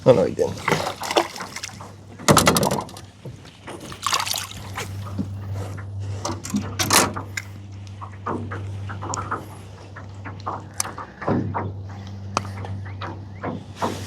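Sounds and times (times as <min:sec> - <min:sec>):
water splashing: 0:00.0 - 0:11.2
low steady hum: 0:00.0 - 0:14.0
water trickling: 0:00.3 - 0:05.6.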